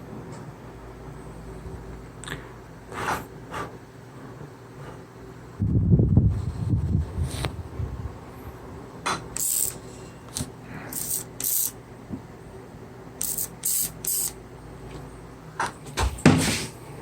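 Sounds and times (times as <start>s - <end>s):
loud knock with hiss: 16.0s - 16.7s.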